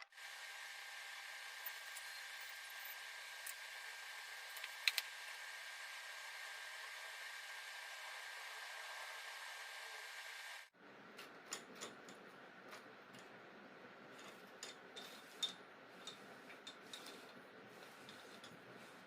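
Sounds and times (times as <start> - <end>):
metal parts clicking and tapping: 4.5 - 5.1, 11.2 - 13.4, 14.2 - 17.4.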